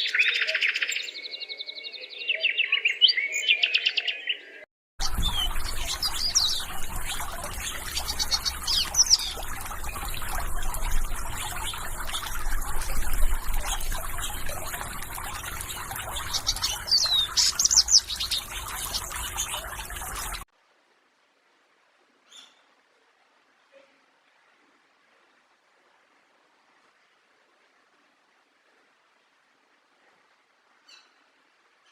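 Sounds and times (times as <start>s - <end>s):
small birds chirping: 0.0s - 20.4s.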